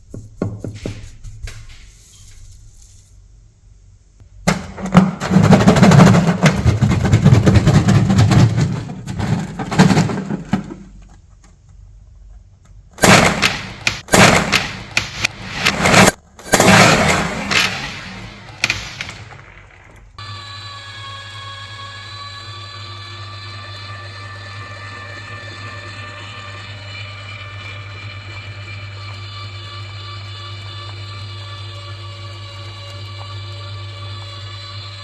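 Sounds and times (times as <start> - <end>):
electric grinder motor running: 20.2 - 35.0.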